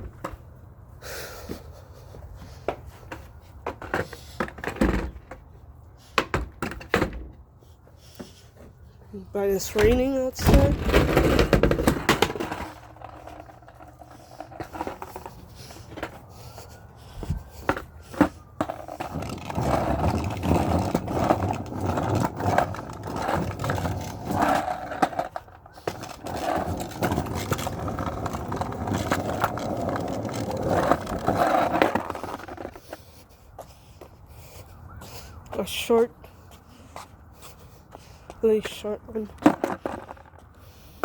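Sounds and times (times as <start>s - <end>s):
skateboard rolling on wet pavement: 10.6s - 16.7s, 17.4s - 33.2s, 38.6s - 41.0s.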